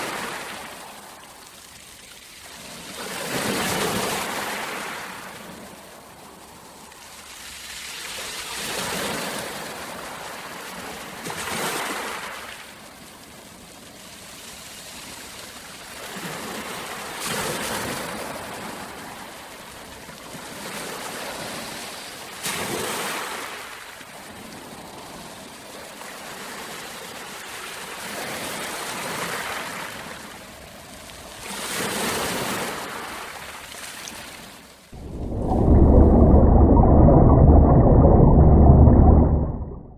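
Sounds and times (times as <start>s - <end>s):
rushing water: 35.0s - 39.9s.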